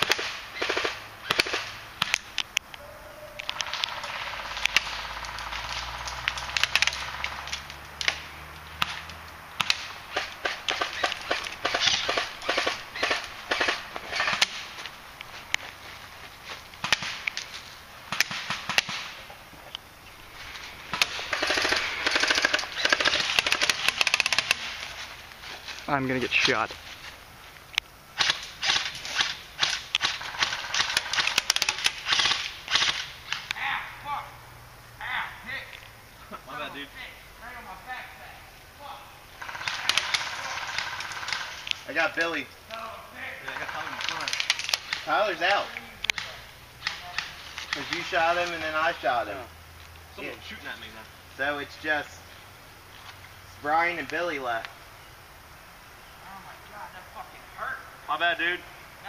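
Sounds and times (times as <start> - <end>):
airsoft rapid fire rattle: 0.0 - 2.2, 9.6 - 14.6, 20.9 - 24.8, 28.2 - 33.1, 39.4 - 41.6
airsoft shots and bb hits: 8.0 - 14.6, 18.1 - 19.2, 28.2 - 33.5
running footsteps in dry brush: 11.3 - 17.9, 24.7 - 27.7.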